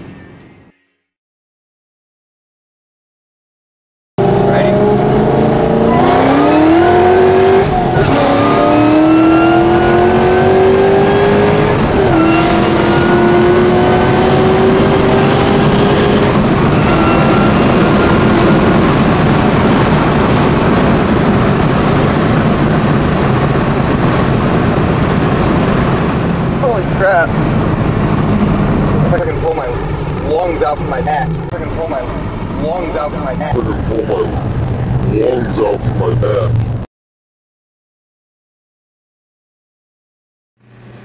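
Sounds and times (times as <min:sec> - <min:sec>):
road and wind noise: 0:00.0 - 0:00.8, 0:04.2 - 0:36.9, 0:40.6 - 0:41.0
car engine accelerating: 0:04.2 - 0:36.9.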